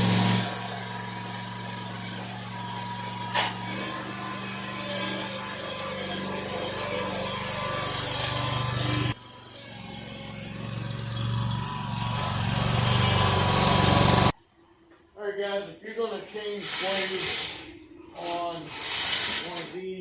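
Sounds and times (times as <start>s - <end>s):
riding lawn mower engine: 0.0s - 14.4s.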